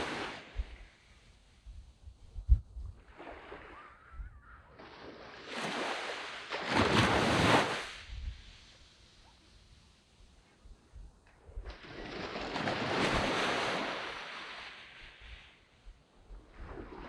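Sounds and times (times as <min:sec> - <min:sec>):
sea waves washing on sand: 0:00.0 - 0:01.4, 0:04.8 - 0:10.5, 0:11.7 - 0:17.0.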